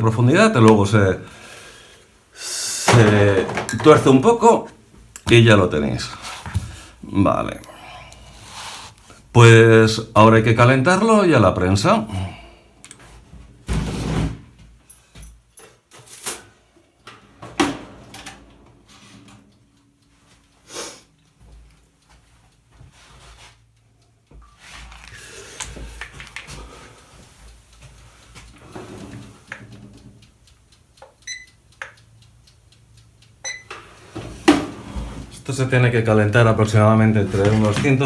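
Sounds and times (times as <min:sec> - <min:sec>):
objects knocking and clicking: 0:02.9 - 0:04.0.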